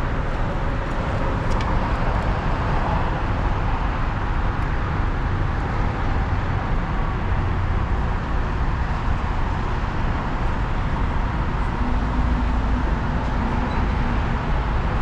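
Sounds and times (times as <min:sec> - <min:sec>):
car road noise rumble: 0:00.0 - 0:15.0.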